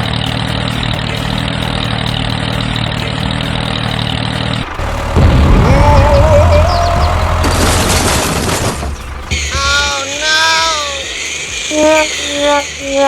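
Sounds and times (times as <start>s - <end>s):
vehicle engine running: 0.0s - 12.8s
low rumble with wavering whine: 4.6s - 9.6s.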